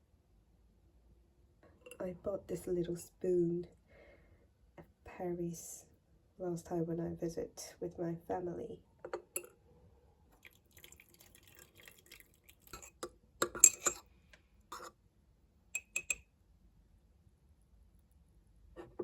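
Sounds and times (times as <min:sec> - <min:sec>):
spoon clinking against glass: 0:12.7 - 0:14.0, 0:15.8 - 0:16.2.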